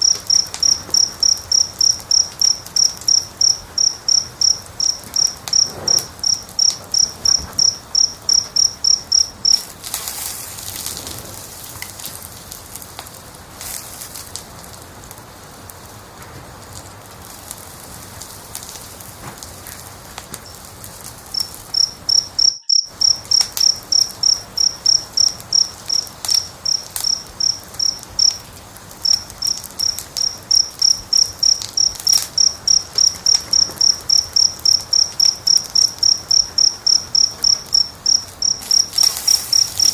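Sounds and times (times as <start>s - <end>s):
cricket chirping: 0.0s - 12.3s, 20.4s - 39.9s
wood fire crackling and popping: 0.0s - 39.9s.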